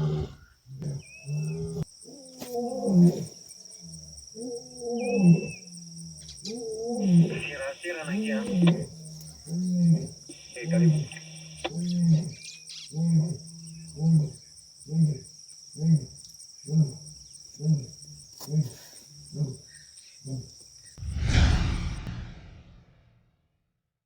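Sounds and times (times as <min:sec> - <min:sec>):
lion grunting: 0:00.0 - 0:01.8
crickets trilling: 0:00.0 - 0:21.0
rushing noise burst: 0:21.0 - 0:23.2.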